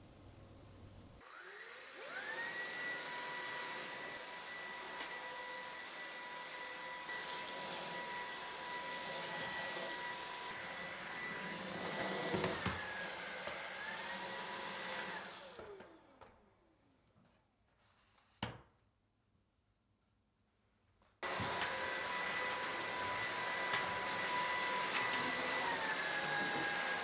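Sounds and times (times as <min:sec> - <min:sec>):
stick vacuum whining: 0:02.0 - 0:16.1, 0:21.2 - 0:27.0.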